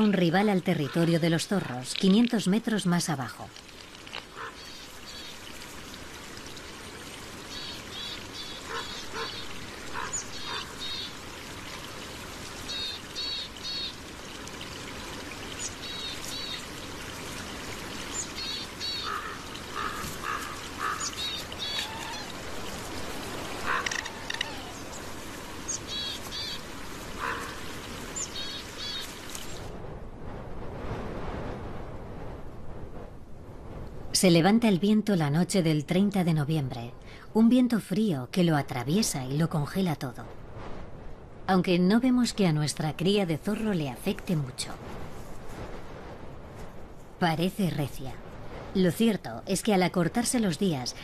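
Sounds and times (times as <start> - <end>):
steady background hiss: 0.0 - 51.0
lower short bird calls: 18.2 - 22.4.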